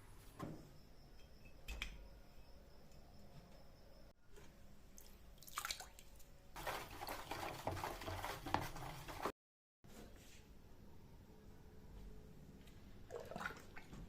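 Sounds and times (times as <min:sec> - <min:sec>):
liquid splashing and trickling: 0:05.0 - 0:09.3, 0:13.1 - 0:14.0.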